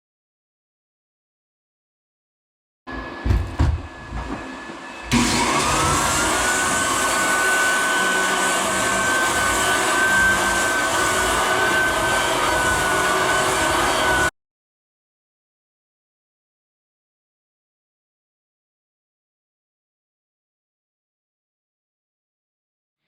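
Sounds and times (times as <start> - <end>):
floor sander motor running: 2.9 - 14.3
knocks: 3.2 - 4.4.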